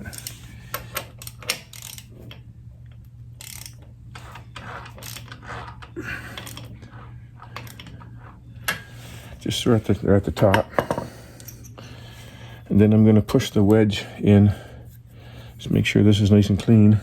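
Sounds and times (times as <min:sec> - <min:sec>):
steady low hum: 0:00.0 - 0:17.0
ratchet wrench clicking: 0:00.1 - 0:02.1, 0:03.4 - 0:05.6.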